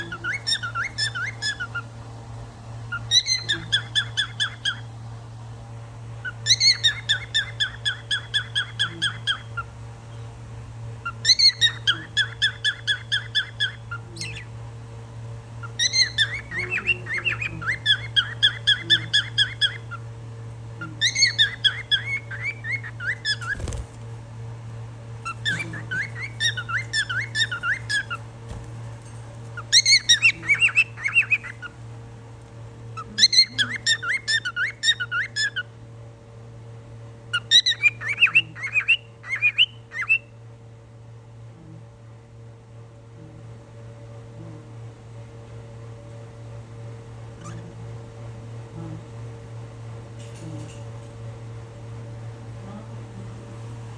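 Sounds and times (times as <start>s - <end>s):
cockatiel chirping and whistling: 0.0s - 1.8s, 2.9s - 4.8s, 6.2s - 9.7s, 11.0s - 14.5s, 15.6s - 20.0s, 21.0s - 23.8s, 25.2s - 28.2s, 29.6s - 31.7s, 33.0s - 35.7s, 37.4s - 40.3s
steady low hum: 0.0s - 53.9s.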